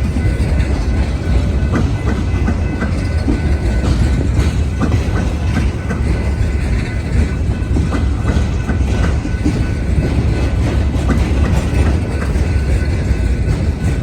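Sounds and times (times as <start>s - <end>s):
train cars rumbling past: 0.0s - 14.0s
wheels clacking over rail joints: 0.0s - 14.0s.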